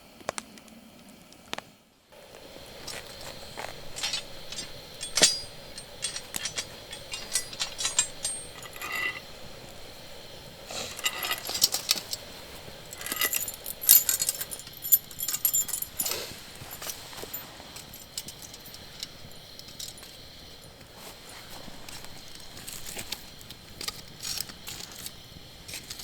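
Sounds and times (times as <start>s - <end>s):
small hard objects clinking: 2.3s - 20.2s.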